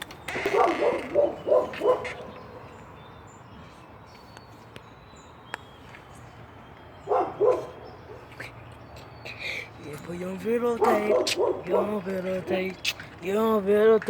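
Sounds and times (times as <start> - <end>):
dog barking: 0.5 - 2.3, 7.1 - 8.3, 10.8 - 12.0.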